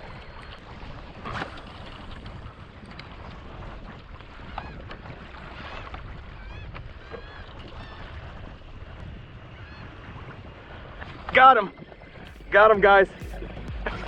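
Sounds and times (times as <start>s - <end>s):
wind buffeting microphone: 0.0s - 14.0s
seabirds calling: 4.1s - 14.0s.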